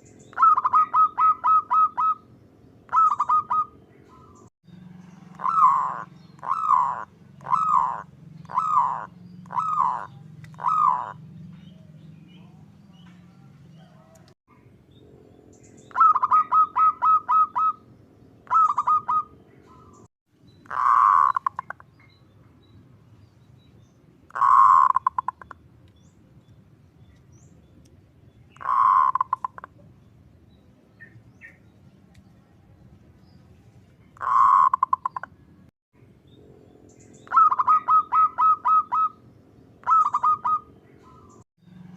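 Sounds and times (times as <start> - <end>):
zebra dove cooing: 0.3 - 2.3, 2.9 - 4.5, 5.1 - 12.6, 15.9 - 17.8, 18.4 - 20.0, 20.7 - 21.8, 24.3 - 25.6, 28.5 - 29.8, 34.2 - 35.3, 37.2 - 39.2, 39.8 - 41.4.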